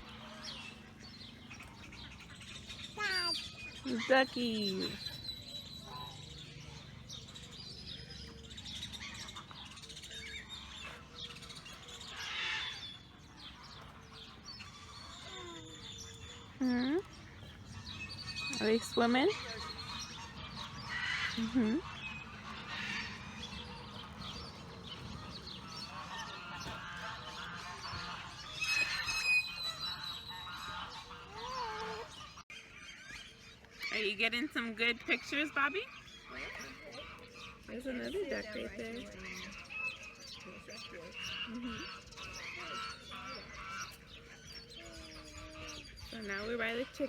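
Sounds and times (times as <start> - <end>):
small birds chirping: 0.0 - 47.0
waterfowl calling: 8.2 - 32.8.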